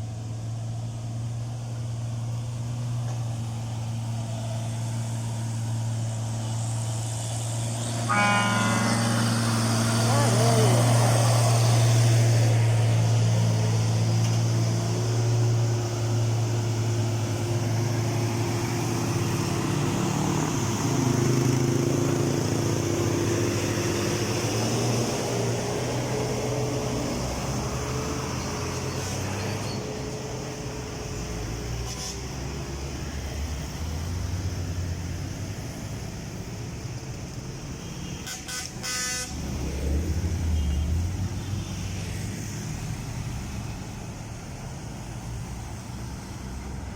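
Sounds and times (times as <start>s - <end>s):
vehicle engines passing: 0.0s - 46.9s
short horn toot: 8.0s - 9.6s, 38.2s - 39.4s.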